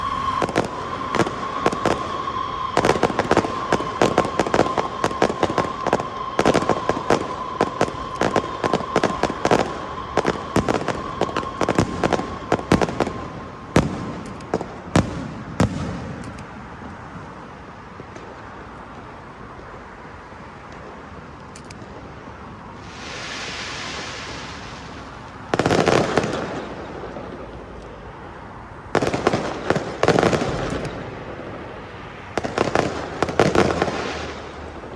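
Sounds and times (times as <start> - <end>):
steady high tone: 0.0 - 14.7
firecrackers banging: 0.0 - 19.8, 20.6 - 34.9.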